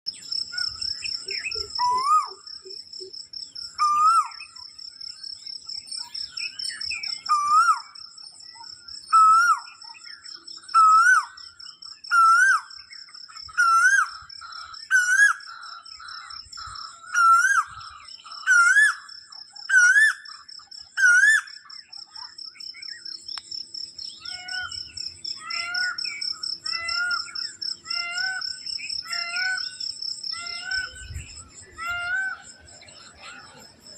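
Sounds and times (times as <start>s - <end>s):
high insect trill: 10.5s - 33.9s.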